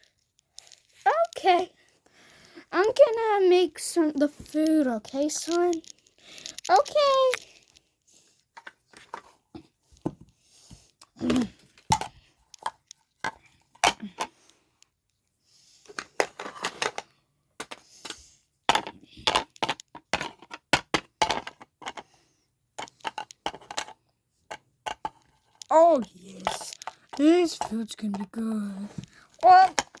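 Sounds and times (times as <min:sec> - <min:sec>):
toy dishes clicking and clattering: 0:02.3 - 0:07.8, 0:11.0 - 0:14.5, 0:15.9 - 0:30.0.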